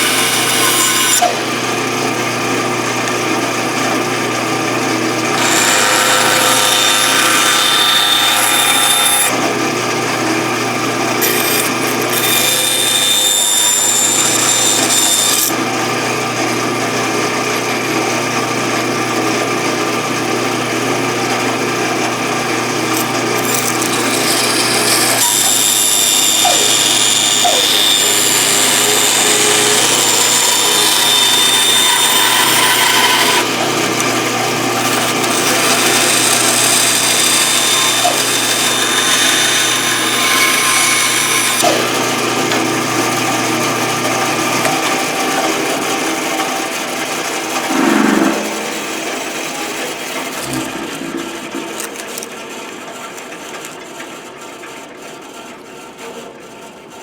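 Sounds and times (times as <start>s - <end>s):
saw blade cutting wood: 0.0s - 2.2s, 5.2s - 9.6s, 11.1s - 15.6s, 22.9s - 42.8s, 44.6s - 53.3s
bandsaw motor hum: 0.0s - 53.7s.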